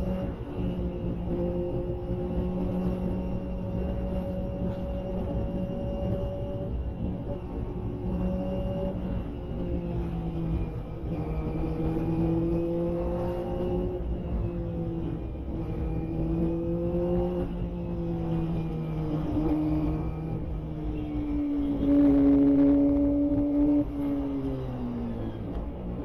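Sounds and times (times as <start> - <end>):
motorcycle engine at high revs: 10.5 - 24.6.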